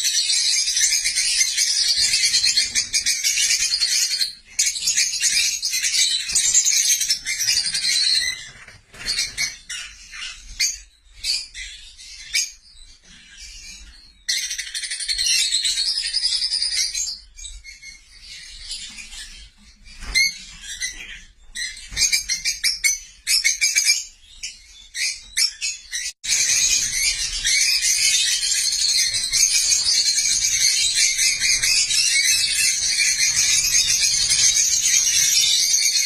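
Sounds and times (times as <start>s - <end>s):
lovebirds chattering: 24.9s - 36.0s.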